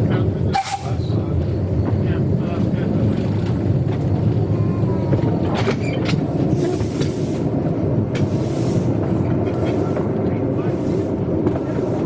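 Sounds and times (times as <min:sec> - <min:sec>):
steam train rumbling: 0:00.0 - 0:12.0
steam hissing: 0:00.5 - 0:01.1, 0:06.4 - 0:12.0.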